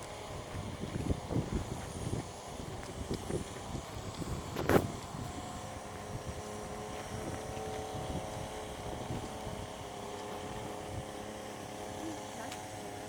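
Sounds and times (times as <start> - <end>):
wind on microphone: 0.0 - 11.3
steady engine hum: 0.0 - 13.0.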